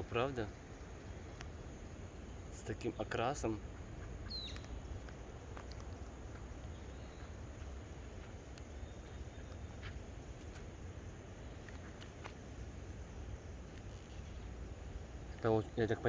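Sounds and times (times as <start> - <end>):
high insect or bird chirp: 0.0 - 16.0
faint clicks: 4.4 - 6.8, 7.6 - 8.8.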